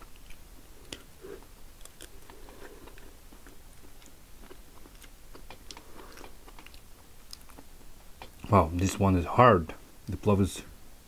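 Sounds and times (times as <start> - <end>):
person chewing food: 0.0 - 9.0.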